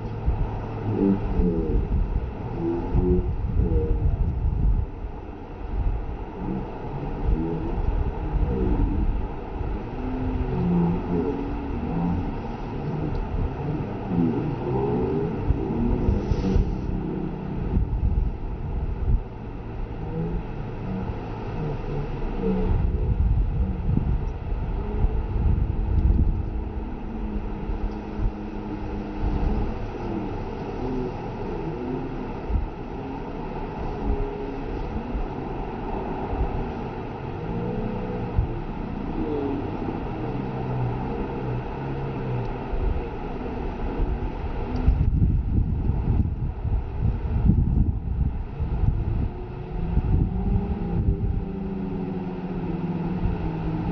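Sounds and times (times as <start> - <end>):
boat engine rumbling: 0.0 - 53.9
wind buffeting microphone: 0.0 - 53.9.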